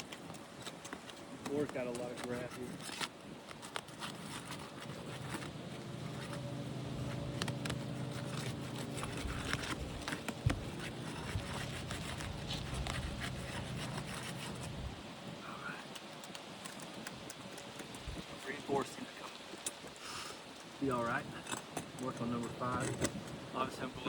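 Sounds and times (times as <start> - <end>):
steady low hum: 4.1 - 19.2.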